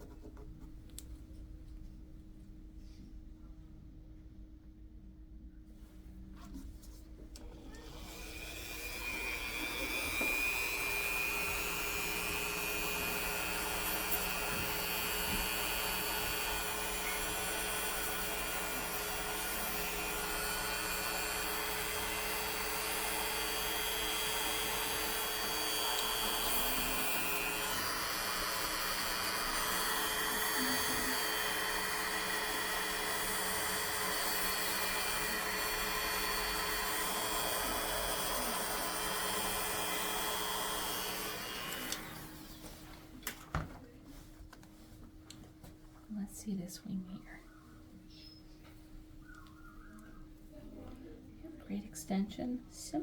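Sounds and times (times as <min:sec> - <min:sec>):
rotary grinding tool whining: 0:07.6 - 0:42.8.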